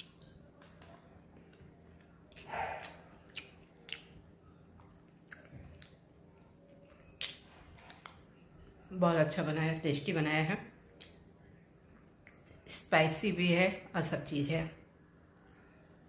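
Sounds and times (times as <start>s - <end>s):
faint chewing: 0.0s - 8.9s
wet mouth clicks and smacks: 2.3s - 4.2s, 5.1s - 8.2s.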